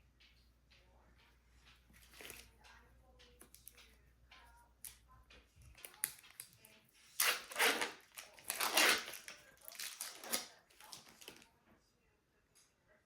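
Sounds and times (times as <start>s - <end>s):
light clicks and taps: 0.0s - 7.2s.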